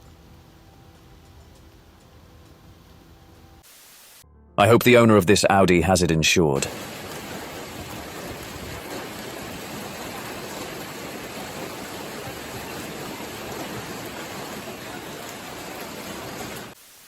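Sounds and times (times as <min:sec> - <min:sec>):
steady rushing noise: 0:06.6 - 0:16.8.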